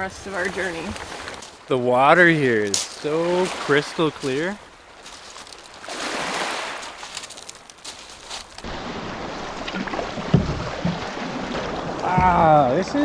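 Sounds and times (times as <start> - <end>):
water lapping around canoe: 0.0 - 12.8
low thump: 10.3 - 11.0.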